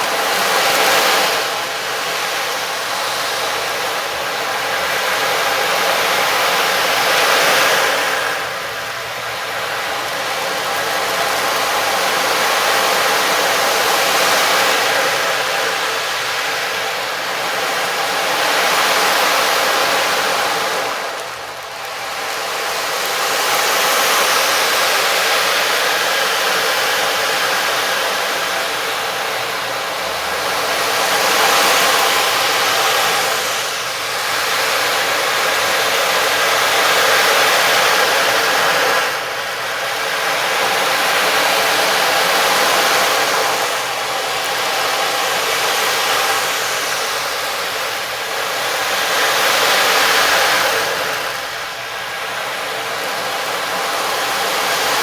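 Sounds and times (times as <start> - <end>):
surf-like rushing noise: 0.0 - 55.0.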